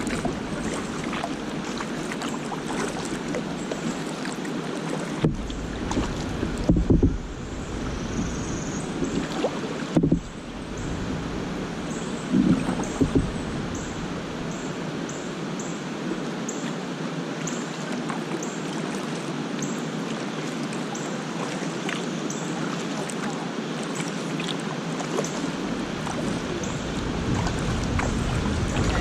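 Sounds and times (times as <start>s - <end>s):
wind rumble on microphone: 0.0s - 2.0s, 5.2s - 15.0s, 25.4s - 29.0s
rushing water of cascades: 0.0s - 29.0s.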